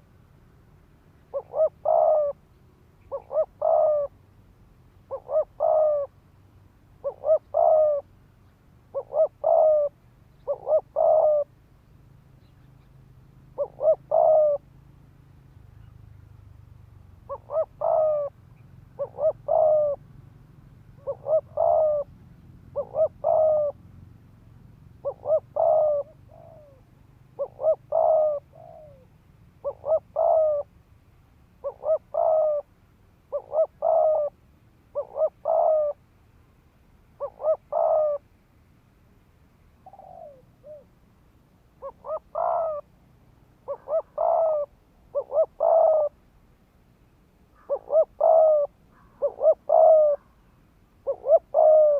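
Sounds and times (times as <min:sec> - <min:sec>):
dove cooing: 0:01.2 - 0:08.2, 0:08.9 - 0:11.6, 0:12.4 - 0:14.8, 0:16.9 - 0:24.2, 0:24.8 - 0:30.8, 0:31.6 - 0:36.0, 0:37.2 - 0:38.3, 0:39.8 - 0:41.0, 0:41.7 - 0:46.3, 0:47.5 - 0:51.9.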